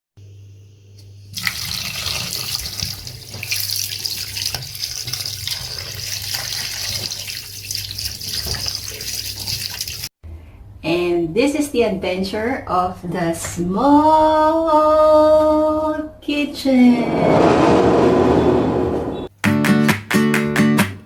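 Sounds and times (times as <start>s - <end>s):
tap water running into sink: 1.3s - 10.1s.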